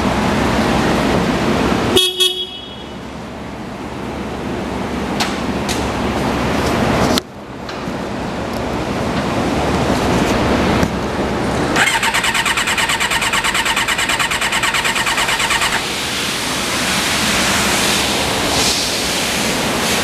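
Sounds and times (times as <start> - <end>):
steady rushing noise: 7.9 - 20.0
motorcycle starter cranking: 11.8 - 16.0.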